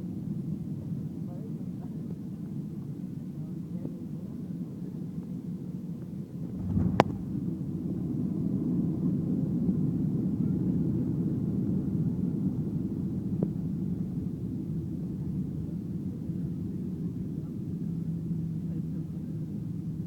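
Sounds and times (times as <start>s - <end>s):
airplane cabin rumble: 6.4s - 8.2s.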